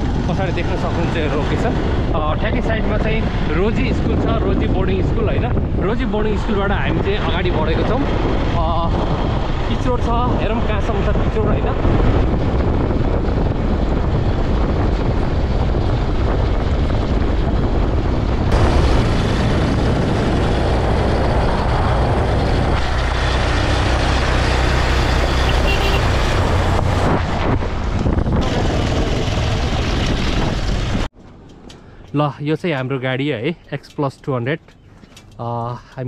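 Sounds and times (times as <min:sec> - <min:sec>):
wind noise on microphone: 0:00.0 - 0:31.2
motorcycle engine droning: 0:12.6 - 0:27.1.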